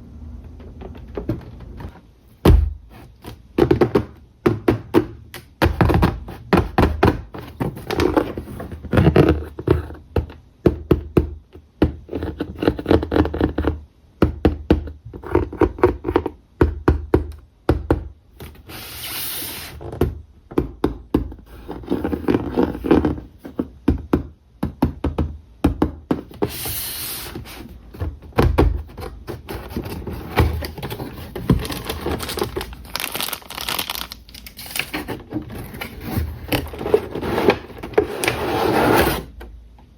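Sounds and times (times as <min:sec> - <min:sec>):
packaging rustling: 0:29.0 - 0:39.3.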